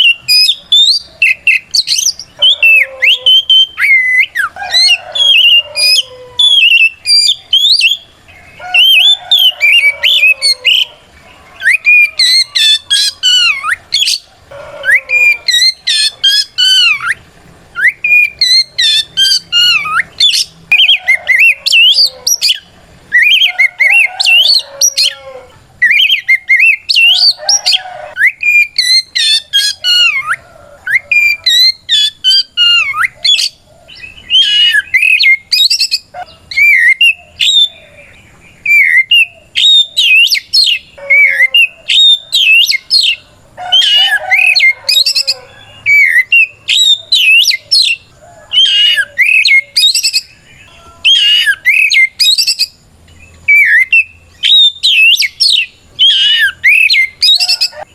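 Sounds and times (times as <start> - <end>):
magpie-robin singing whistled notes: 0.0 - 11.0, 11.6 - 25.2, 25.8 - 57.9.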